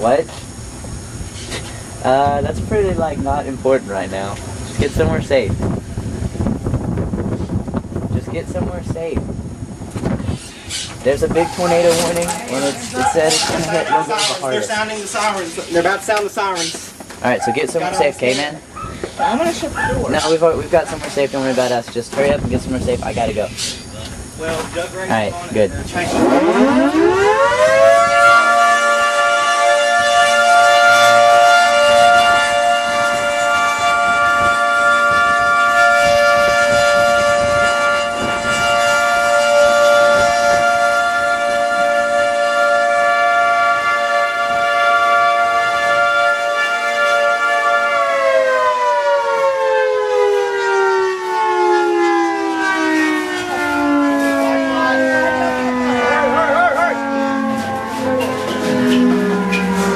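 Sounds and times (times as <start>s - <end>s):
warning siren wailing: 8.5s - 16.6s, 24.3s - 59.9s.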